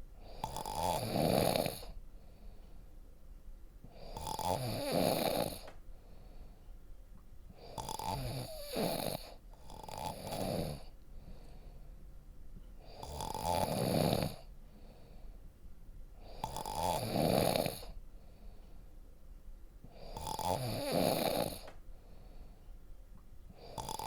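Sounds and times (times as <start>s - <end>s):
person snoring deeply: 0.3s - 2.0s, 4.0s - 5.7s, 7.6s - 10.9s, 12.9s - 14.5s, 16.3s - 18.0s, 20.0s - 21.7s, 23.6s - 24.0s.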